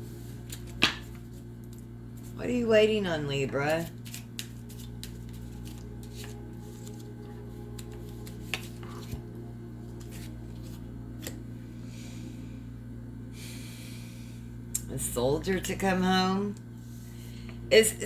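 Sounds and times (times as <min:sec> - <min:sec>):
steady low hum: 0:00.0 - 0:18.0
cards clicking and tapping: 0:00.5 - 0:01.8, 0:03.8 - 0:07.0, 0:07.8 - 0:09.2.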